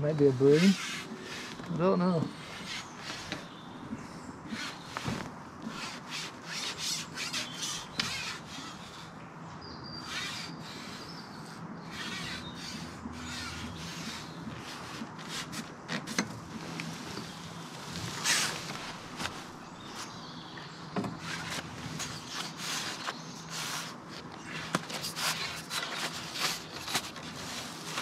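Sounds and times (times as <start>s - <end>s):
fishing tackle rubbing and scraping: 0.3s - 3.6s, 10.0s - 20.2s.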